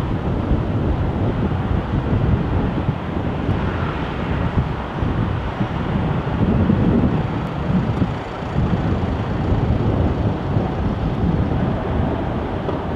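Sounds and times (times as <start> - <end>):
jet engine rumble: 0.0 - 12.9
wind buffeting microphone: 0.0 - 12.9.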